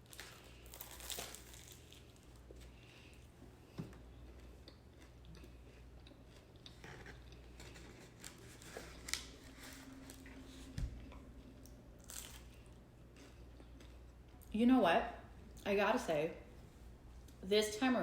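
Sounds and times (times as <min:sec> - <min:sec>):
pie crust crunching: 0:00.0 - 0:03.2, 0:04.0 - 0:11.2, 0:12.0 - 0:14.1
low steady hum: 0:00.0 - 0:18.0.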